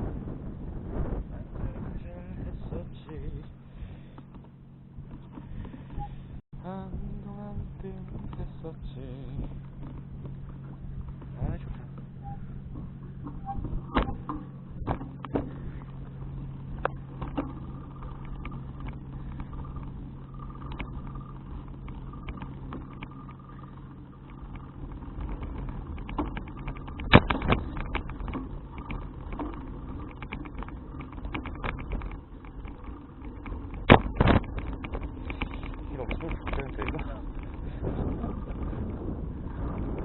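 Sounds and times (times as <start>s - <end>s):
bicycle rattling and clicking: 0.0s - 6.4s, 7.2s - 40.0s
low engine hum: 0.0s - 40.0s
bicycle hard jolts: 15.2s - 40.0s.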